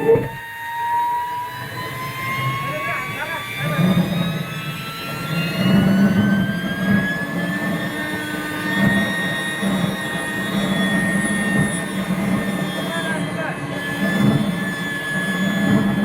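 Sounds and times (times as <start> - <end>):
low pulsing rumble: 0.0 - 0.4
turbine jet engine whine: 0.0 - 16.0.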